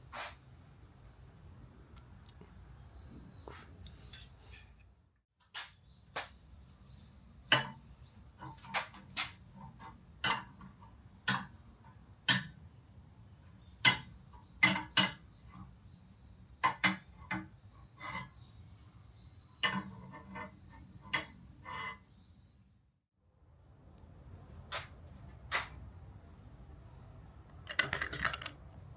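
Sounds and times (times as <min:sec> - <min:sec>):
hard parts clicking and knocking: 0:27.5 - 0:28.8.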